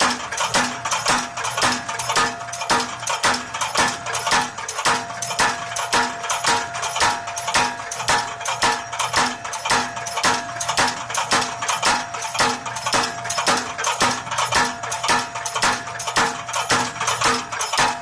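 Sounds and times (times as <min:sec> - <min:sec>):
power hammer metallic clangs: 0:00.0 - 0:18.0.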